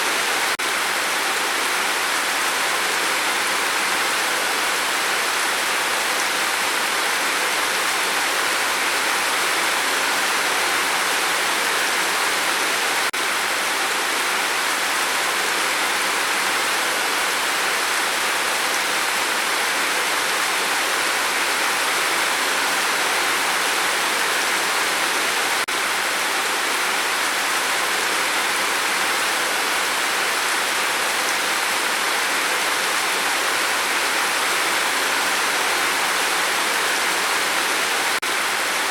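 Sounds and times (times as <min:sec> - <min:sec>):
dense rain falling: 0:00.0 - 0:38.9.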